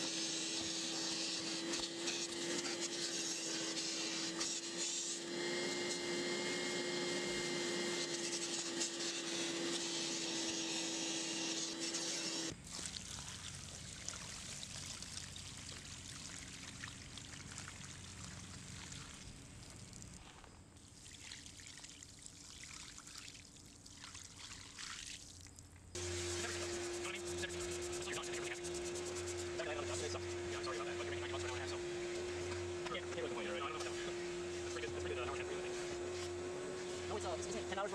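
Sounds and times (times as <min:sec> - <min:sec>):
carpet extractor motor whine: 0:00.0 - 0:12.6, 0:26.0 - 0:37.9.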